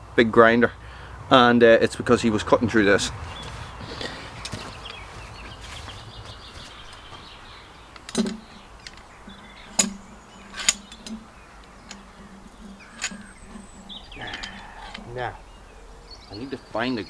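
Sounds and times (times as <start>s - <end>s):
sharp clicks and knocks: 3.4s - 13.6s.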